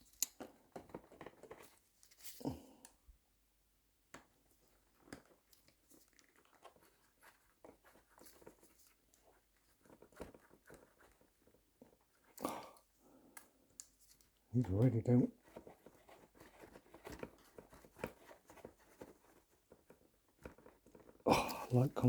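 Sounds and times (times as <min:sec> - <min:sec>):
small clicks of handling parts: 0:00.0 - 0:03.0, 0:13.3 - 0:14.4.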